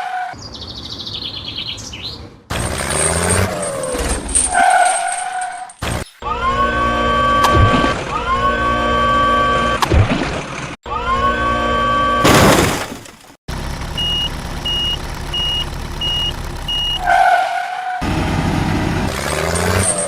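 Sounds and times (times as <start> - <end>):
construction machinery engine: 2.5 - 4.4, 5.8 - 12.3, 13.5 - 17.1, 18.0 - 20.0
reversing alarm beeps: 14.0 - 17.1.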